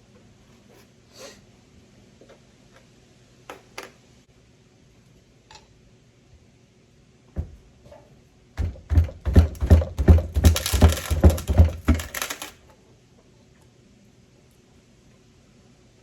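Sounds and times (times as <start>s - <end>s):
sharp metal knocks: 8.6s - 12.5s.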